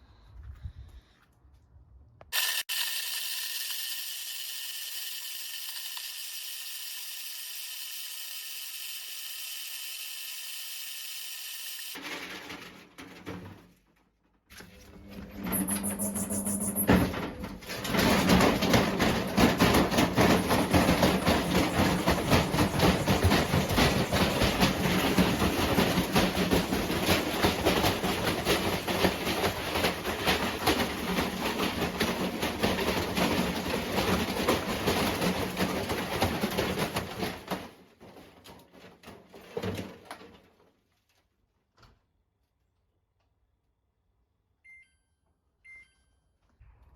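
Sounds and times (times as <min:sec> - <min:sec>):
washing machine banging and rattling: 0:12.0 - 0:13.9, 0:14.7 - 0:40.5.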